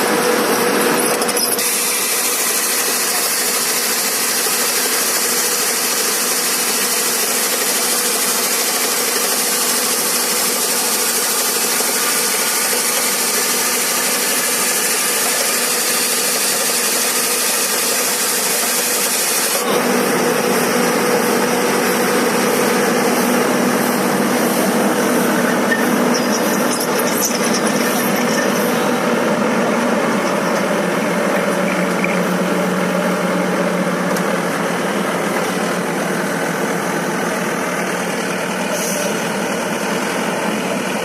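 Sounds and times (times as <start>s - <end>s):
diesel engine humming: 19.6s - 41.0s.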